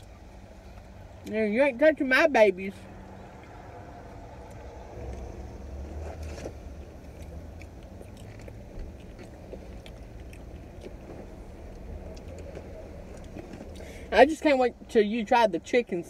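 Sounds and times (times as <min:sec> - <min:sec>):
low steady rumble: 0:00.0 - 0:16.0
chewing and crunching food: 0:02.7 - 0:14.1.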